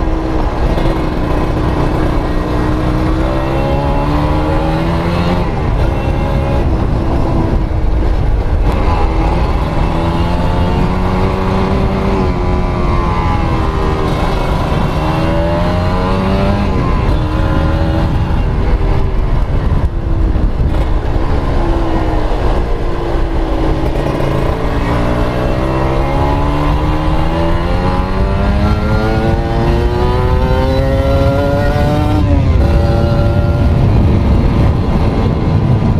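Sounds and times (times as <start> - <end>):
two-stroke engine running under load: 0.0 - 16.0.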